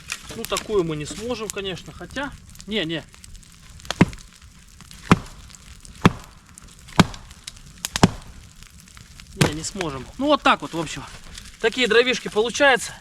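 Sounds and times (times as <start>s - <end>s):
firewood chopping strikes: 2.5s - 11.6s.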